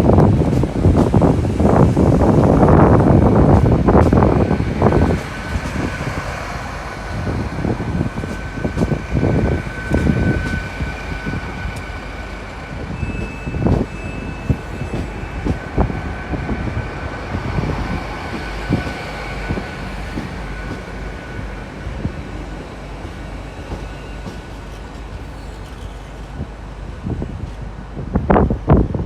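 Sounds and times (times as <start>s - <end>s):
train running: 0.0s - 29.0s.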